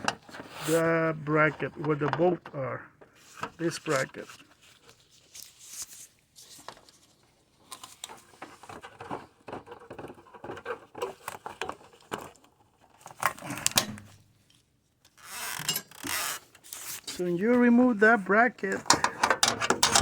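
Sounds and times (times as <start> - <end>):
tools clicking and tapping: 18.8 - 20.0.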